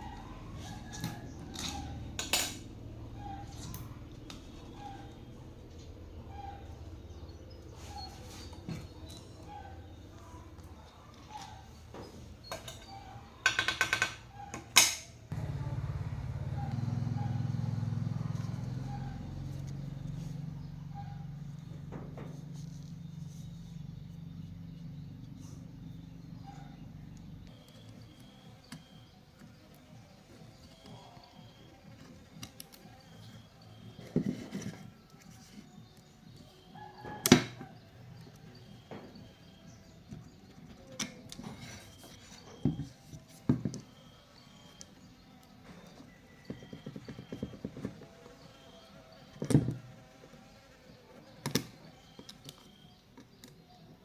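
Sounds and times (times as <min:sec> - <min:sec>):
low motor-like hum: 0:00.0 - 0:11.6, 0:15.3 - 0:34.2.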